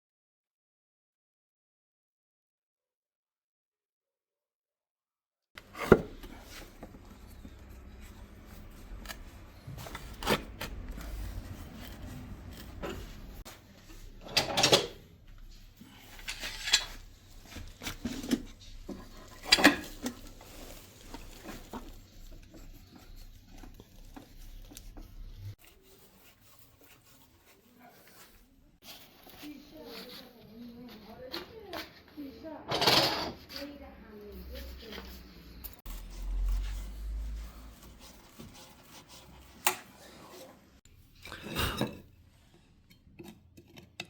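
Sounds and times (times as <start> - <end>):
objects clinking and rubbing: 5.6 - 31.9.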